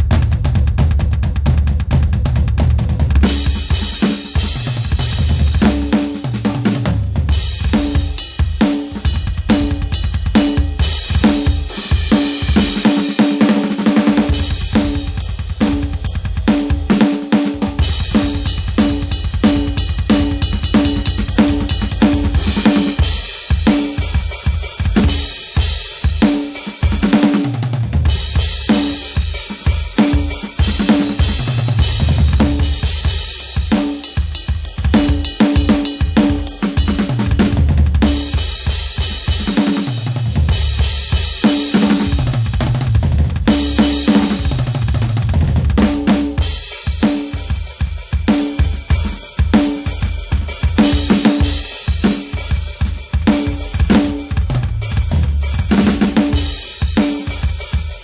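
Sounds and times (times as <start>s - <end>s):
bass drum strokes: 0.0s - 3.6s, 31.2s - 33.7s, 40.1s - 41.3s, 53.1s - 56.6s
electronic drum kit: 0.0s - 58.0s
snare and hi-hat: 3.2s - 58.0s.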